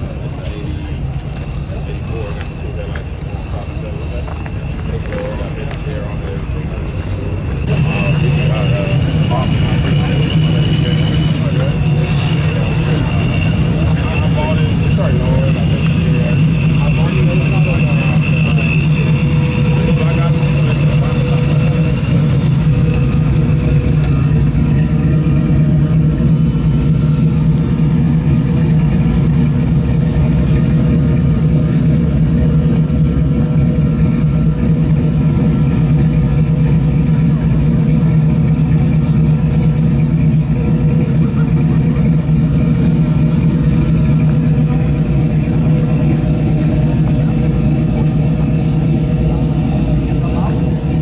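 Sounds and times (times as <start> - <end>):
vehicle engines idling: 0.0 - 51.0.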